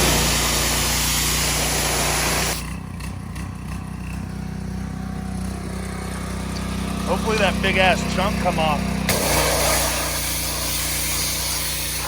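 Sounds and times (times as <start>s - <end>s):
loud hiss: 0.0s - 2.6s, 8.1s - 12.0s
small engine idling: 0.0s - 12.0s.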